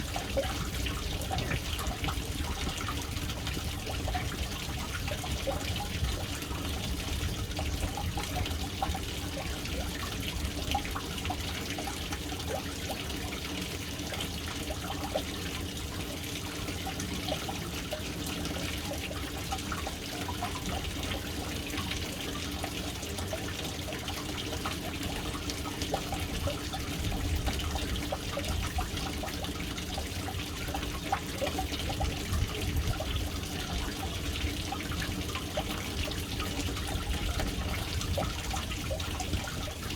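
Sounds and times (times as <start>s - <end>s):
water splashing into a tank: 0.0s - 39.9s.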